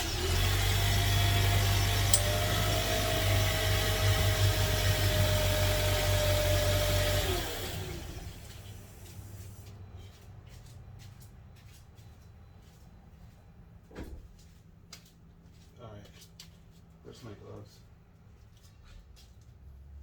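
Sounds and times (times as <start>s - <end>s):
car engine running and winding down: 0.0s - 8.9s.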